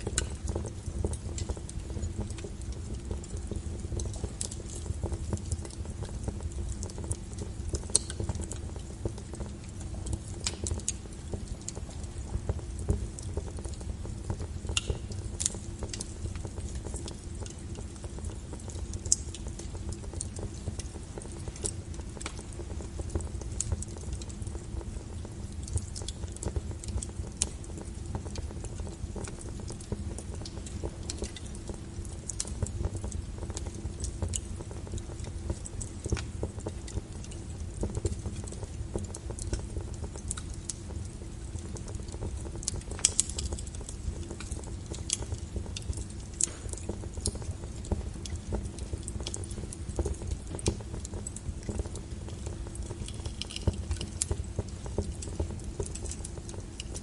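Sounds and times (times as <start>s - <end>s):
log fire crackling and popping: 0.0s - 57.0s.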